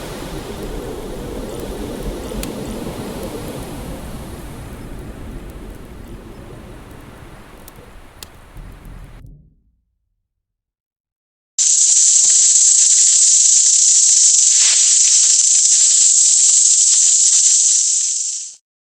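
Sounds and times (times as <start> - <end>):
loud steady high hiss: 11.6 - 18.6.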